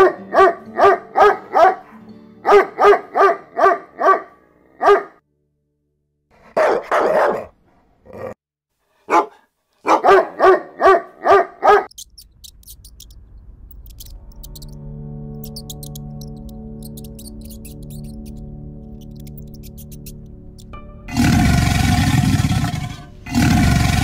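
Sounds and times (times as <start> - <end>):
dog barking: 0.0 - 5.2, 6.4 - 8.4, 9.0 - 11.9.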